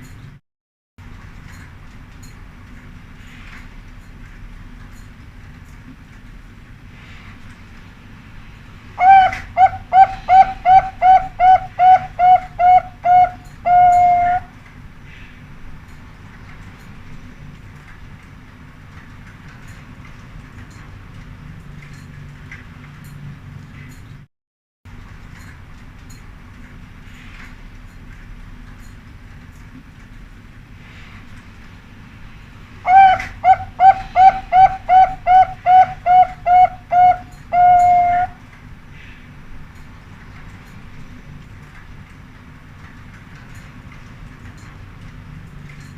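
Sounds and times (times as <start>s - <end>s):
dove cooing: 9.0s - 14.5s, 32.9s - 38.4s.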